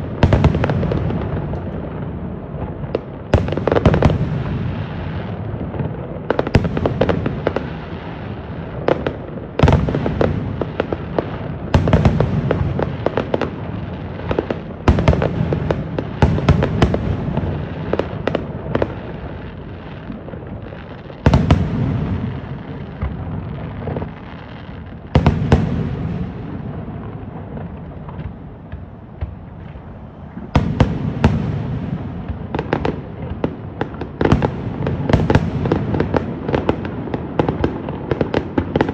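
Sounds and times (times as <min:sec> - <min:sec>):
aerial fireworks bursting: 0:00.0 - 0:38.9.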